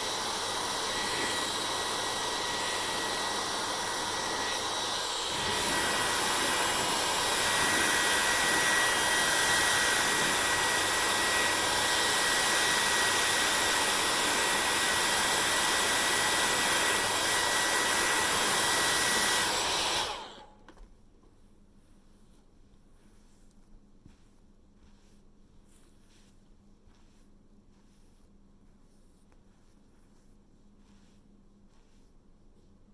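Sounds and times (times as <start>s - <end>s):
hair dryer blowing: 0.0s - 20.6s.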